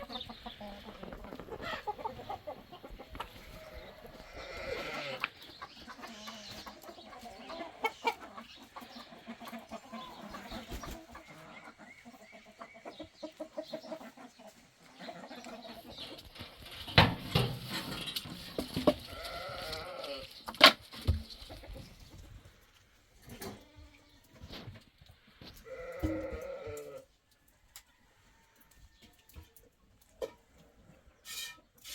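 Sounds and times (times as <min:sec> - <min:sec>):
goats bleating: 0:03.5 - 0:05.3, 0:19.1 - 0:20.3, 0:25.6 - 0:27.0.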